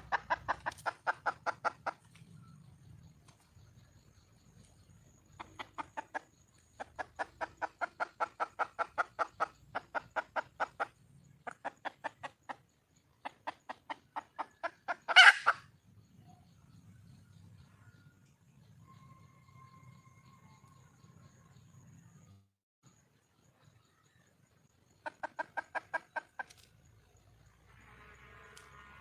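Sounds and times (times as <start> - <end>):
hen clucking: 0.0 - 2.5, 5.2 - 15.8, 25.0 - 26.6.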